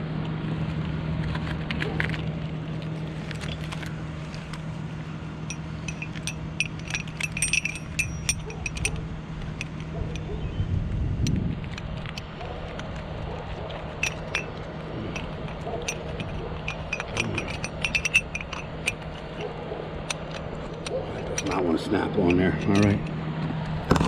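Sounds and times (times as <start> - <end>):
truck engine running: 0.0 - 24.0
metal hardware clinking: 5.4 - 10.6, 11.2 - 23.2.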